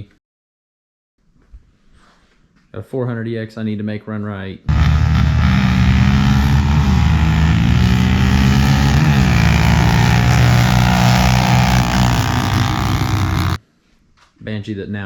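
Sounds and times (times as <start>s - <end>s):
engine running loudly: 4.7s - 13.6s.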